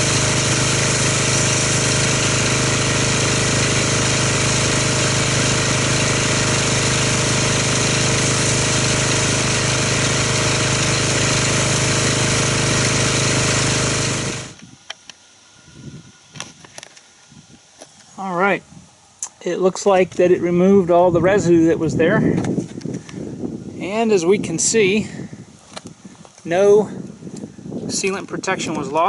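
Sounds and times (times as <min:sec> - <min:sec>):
pressure washer humming: 0:00.0 - 0:18.2.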